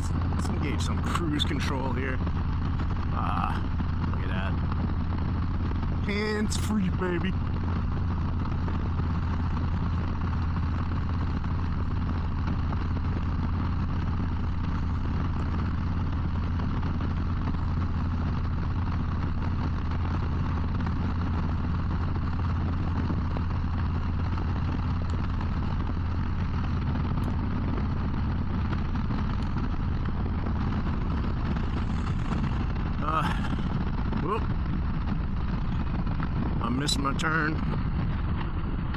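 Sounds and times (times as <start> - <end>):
motorcycle engine cruising: 0.0 - 38.9
road noise: 0.0 - 38.9
wind noise: 0.0 - 38.9.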